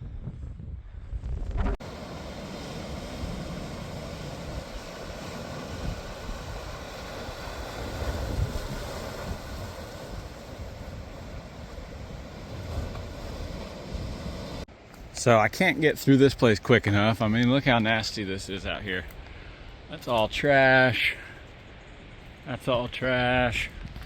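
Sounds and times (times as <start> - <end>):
wind buffeting microphone: 0.0 - 14.6.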